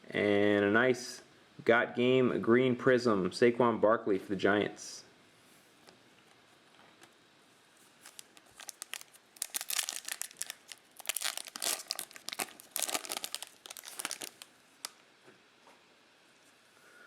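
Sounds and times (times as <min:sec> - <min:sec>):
foil wrapper tearing and crinkling: 0:08.0 - 0:15.0.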